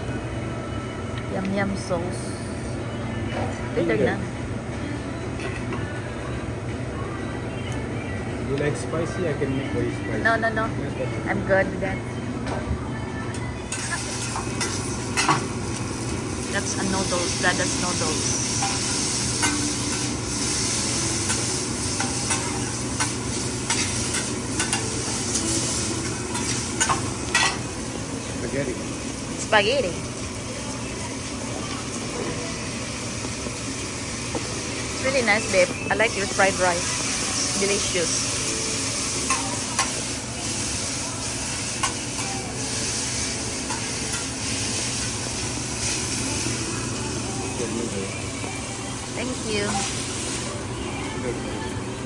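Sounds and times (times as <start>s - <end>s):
noodles sizzling on a griddle: 13.7s - 51.4s
metal spatulas scraping on griddle: 21.3s - 27.6s.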